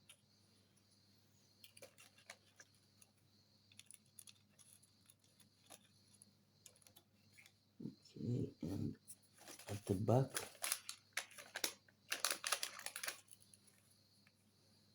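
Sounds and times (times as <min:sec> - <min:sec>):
small parts clicking and tapping: 0:01.6 - 0:07.6, 0:09.4 - 0:14.4.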